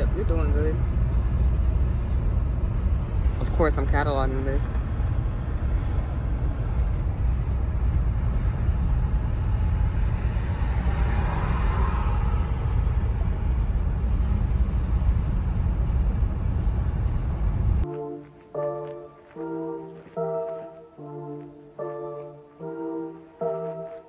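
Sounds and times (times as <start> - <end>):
road and engine noise in car: 0.0 - 17.9
brass music: 17.8 - 24.0.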